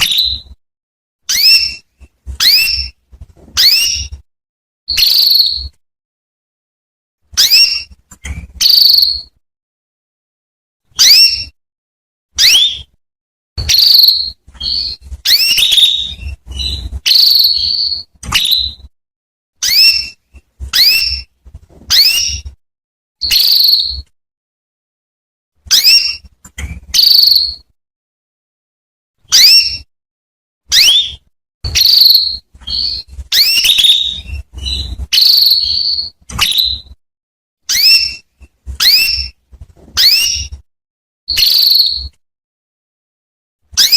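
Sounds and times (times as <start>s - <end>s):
canary calling: 1.3s - 3.0s, 3.6s - 4.2s, 4.9s - 5.7s, 7.4s - 9.3s, 11.0s - 11.6s, 12.4s - 12.9s, 13.6s - 18.8s, 19.6s - 21.3s, 21.9s - 22.5s, 23.2s - 24.0s, 25.7s - 27.6s, 29.3s - 29.9s, 30.7s - 37.0s, 37.7s - 39.4s, 40.0s - 40.6s, 41.3s - 42.1s.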